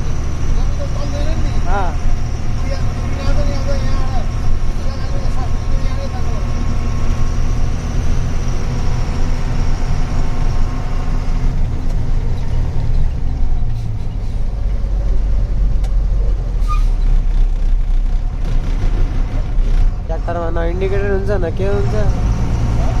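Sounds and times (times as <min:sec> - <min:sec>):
truck engine droning: 0:00.0 - 0:23.0.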